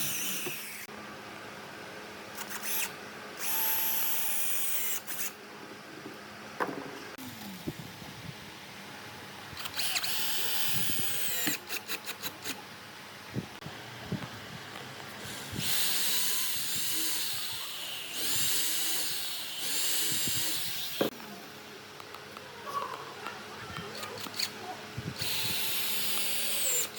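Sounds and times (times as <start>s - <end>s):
electric power drill running: 0.0s - 0.9s, 9.6s - 12.0s, 15.2s - 21.1s, 25.2s - 26.9s.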